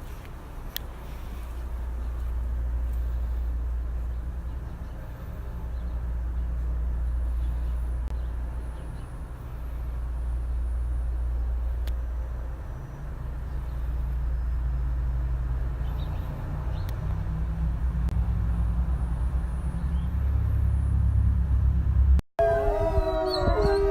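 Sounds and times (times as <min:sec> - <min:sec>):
wind buffeting microphone: 0:16.6 - 0:23.9.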